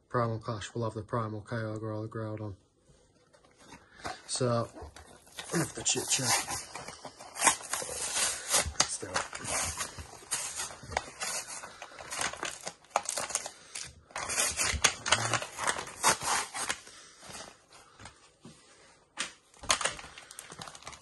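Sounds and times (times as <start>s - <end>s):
packaging tearing and crinkling: 4.5s - 16.9s, 19.6s - 21.0s.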